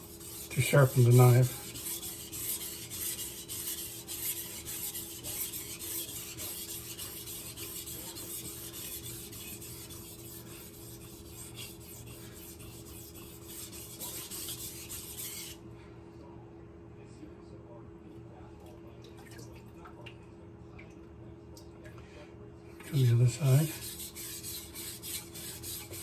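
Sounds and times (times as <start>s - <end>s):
knife scraping on whetstone: 0.0s - 15.6s, 23.0s - 26.0s.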